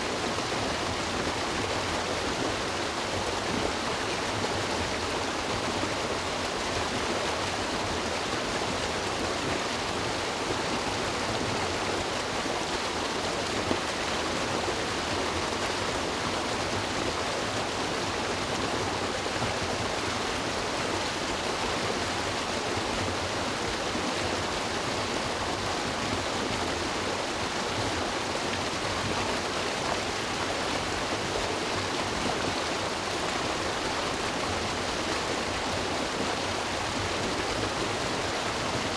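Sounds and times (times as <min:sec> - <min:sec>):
water rushing over rocks: 0:17.0 - 0:38.9.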